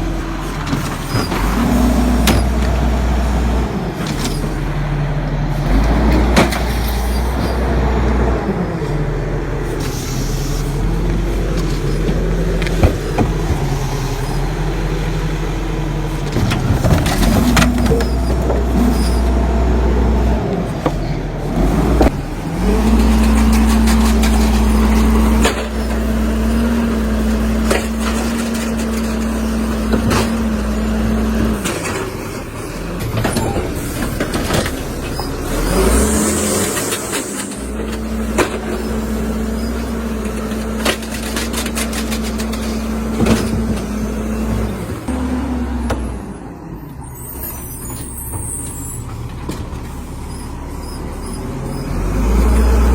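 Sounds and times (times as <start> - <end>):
garbage truck droning hum: 0.0 - 52.9
knocks and clatter: 11.1 - 14.4, 16.1 - 19.6, 36.6 - 45.1.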